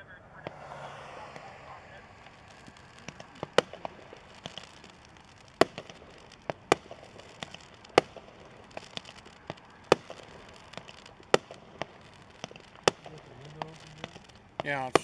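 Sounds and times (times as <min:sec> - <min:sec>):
fireworks banging: 0:00.0 - 0:15.0
fireworks popping and crackling: 0:00.0 - 0:15.0.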